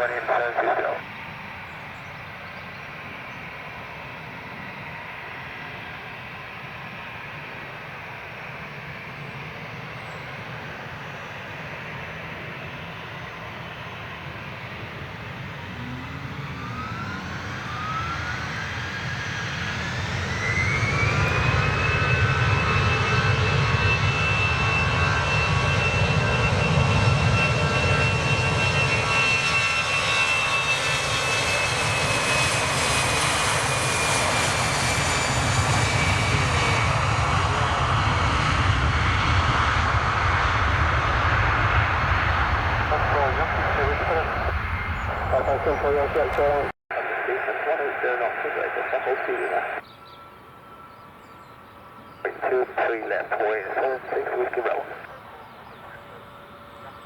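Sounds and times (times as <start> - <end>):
jet engines spooling up: 14.0 - 46.7.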